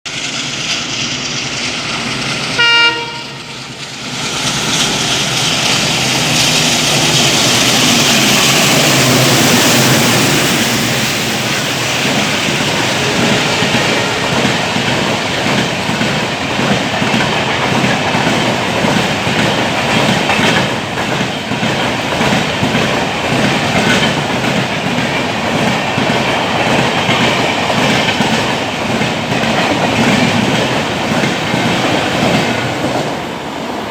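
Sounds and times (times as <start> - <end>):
locomotive running past: 0.1 - 33.9
train wheels clickety-clack: 0.1 - 33.9
locomotive horn blast: 2.6 - 3.6, 12.4 - 15.8.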